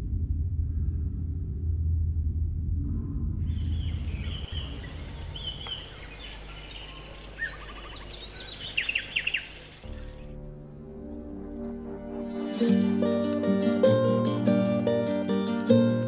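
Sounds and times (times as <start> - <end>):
low steady rumble: 0.0 - 8.8
birds chirping and twittering: 3.5 - 10.3
plucked string music: 9.9 - 16.0.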